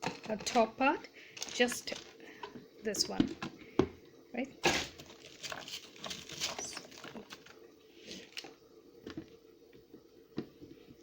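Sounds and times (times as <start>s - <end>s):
silicone pot clicks and rustles: 0.0s - 0.8s, 1.4s - 3.5s, 4.7s - 7.6s.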